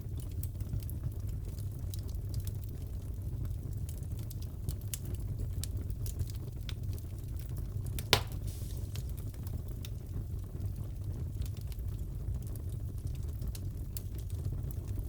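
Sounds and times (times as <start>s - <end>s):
wood fire crackling: 0.0s - 15.0s
low rush of flame: 8.0s - 9.8s.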